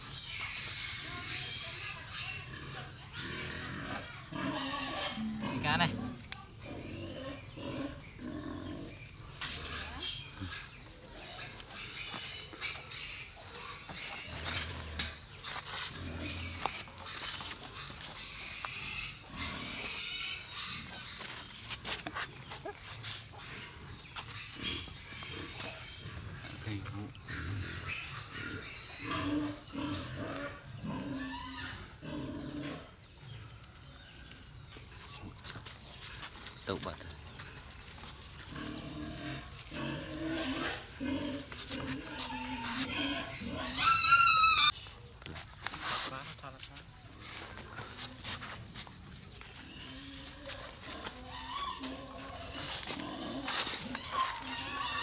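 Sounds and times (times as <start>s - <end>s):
animal sounds: 0.0s - 55.0s
animal crying: 39.2s - 44.8s, 50.0s - 55.0s.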